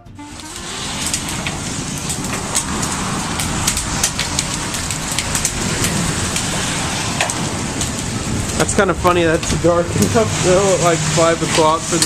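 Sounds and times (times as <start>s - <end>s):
rain downpour: 0.2s - 12.0s
hailstones clicking on surfaces: 0.4s - 12.0s.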